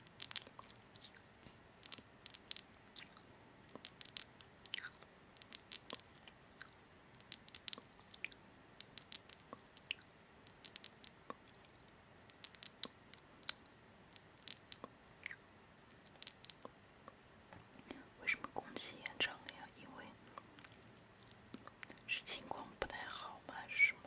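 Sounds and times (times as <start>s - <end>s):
crunchy chewing: 0.0s - 11.8s.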